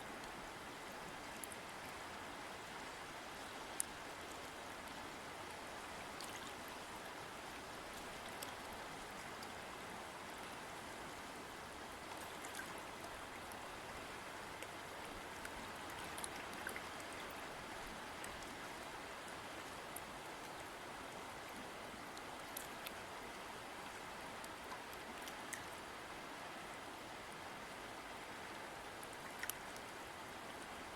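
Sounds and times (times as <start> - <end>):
water splashes and drips: 3.4 - 9.6, 12.0 - 13.8, 14.5 - 20.7, 21.4 - 25.9, 29.0 - 30.8.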